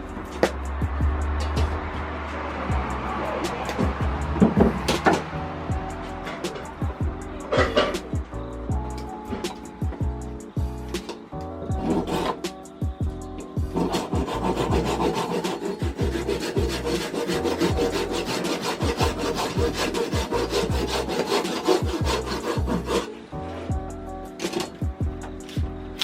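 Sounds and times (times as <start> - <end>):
background music: 0.0 - 26.0
hand saw cutting wood: 3.6 - 5.3, 11.7 - 12.6, 13.7 - 23.2.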